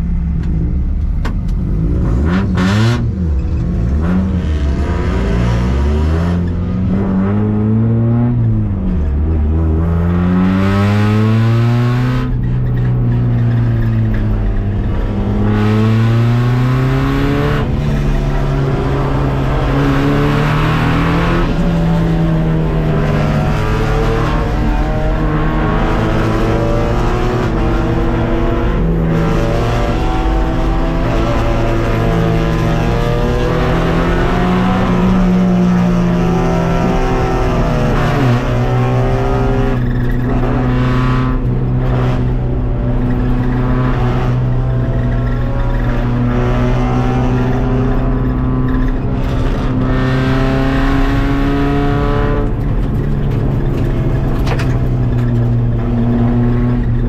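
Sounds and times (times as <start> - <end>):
race car engine accelerating: 1.7 - 57.0.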